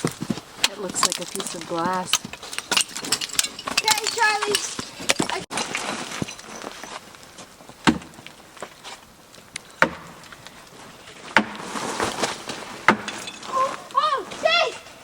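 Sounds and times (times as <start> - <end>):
ice crunching and clicking: 0.0 - 10.8.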